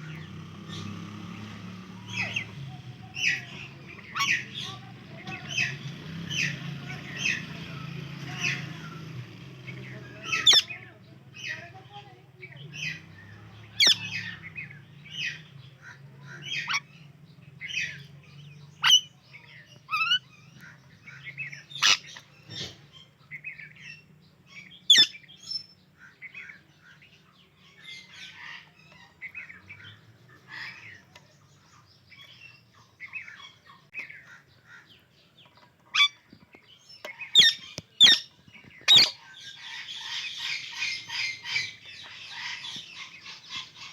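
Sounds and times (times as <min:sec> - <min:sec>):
parakeets chirping: 0:00.0 - 0:43.9
sharp loud parakeet calls: 0:10.2 - 0:11.6, 0:13.7 - 0:14.4, 0:19.9 - 0:22.7, 0:24.5 - 0:26.6, 0:37.2 - 0:43.9.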